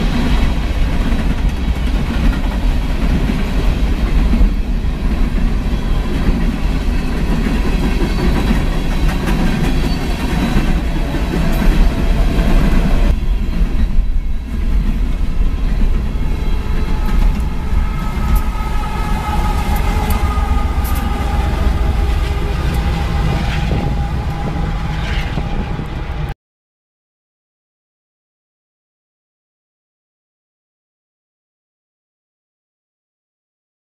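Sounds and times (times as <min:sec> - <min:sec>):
train wheels rumbling on rail: 0:00.0 - 0:26.4.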